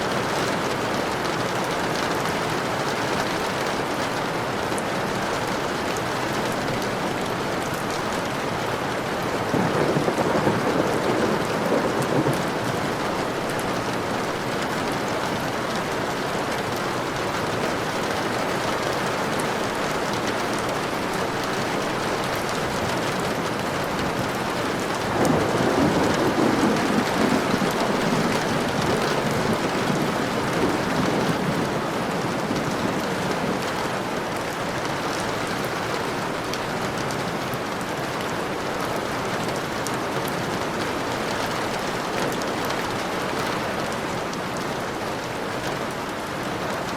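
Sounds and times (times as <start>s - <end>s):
steady rain falling: 0.0s - 46.9s
thunder rolling: 9.4s - 13.5s, 24.1s - 34.3s.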